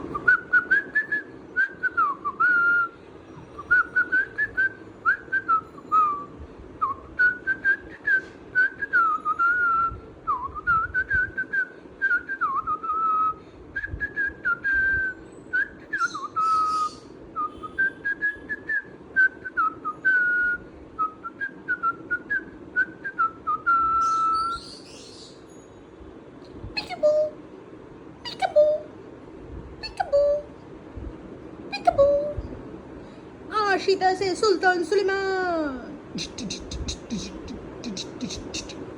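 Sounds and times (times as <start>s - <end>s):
parrot whistling: 15.9s - 18.7s, 23.7s - 25.3s, 36.2s - 38.8s
high rasps: 36.1s - 38.8s.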